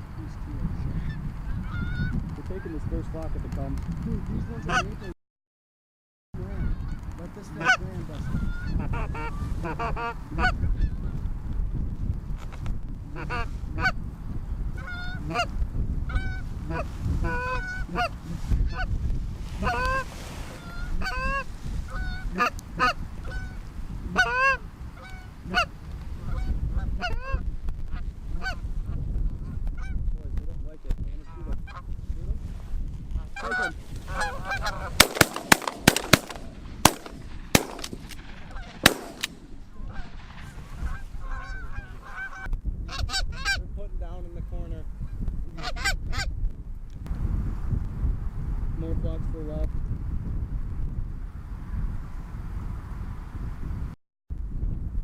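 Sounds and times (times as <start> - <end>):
low wind rumble: 0.0 - 5.1, 6.4 - 55.0
geese honking: 6.5 - 11.0, 14.8 - 15.5, 16.1 - 18.9, 19.6 - 27.4, 33.4 - 43.6
shotgun shots: 35.0 - 40.4.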